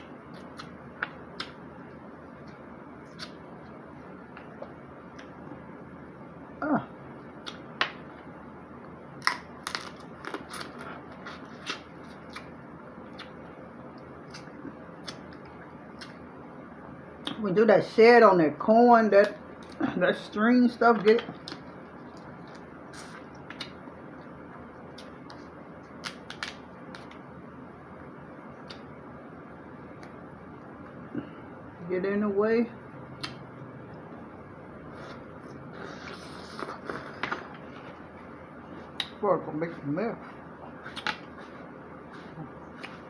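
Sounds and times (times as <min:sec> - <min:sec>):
clicks and snaps of eating food: 0:00.3 - 0:01.6, 0:02.4 - 0:03.4, 0:07.4 - 0:08.0, 0:13.1 - 0:16.2, 0:21.1 - 0:23.8, 0:24.9 - 0:27.2, 0:28.6 - 0:28.9, 0:33.2 - 0:33.5, 0:39.0 - 0:39.2, 0:40.9 - 0:41.3.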